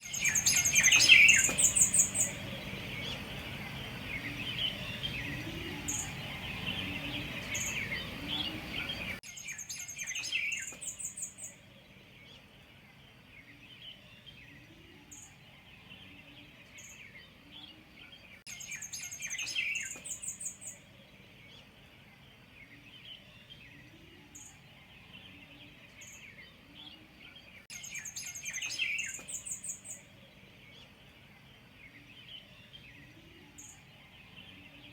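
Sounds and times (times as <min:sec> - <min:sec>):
bird trilling: 0:00.0 - 0:02.4
birds chirping softly: 0:00.0 - 0:34.9.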